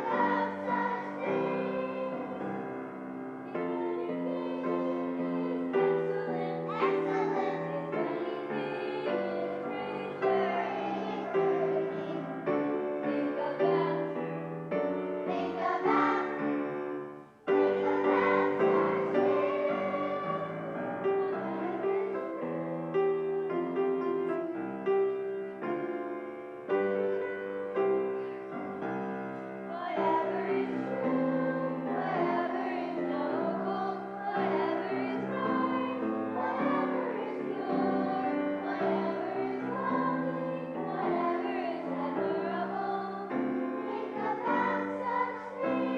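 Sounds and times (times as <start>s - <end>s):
group of voices singing: 0.0s - 2.8s, 3.5s - 14.4s, 15.2s - 16.8s, 17.5s - 22.4s, 29.7s - 45.9s
piano accompaniment: 0.0s - 45.9s.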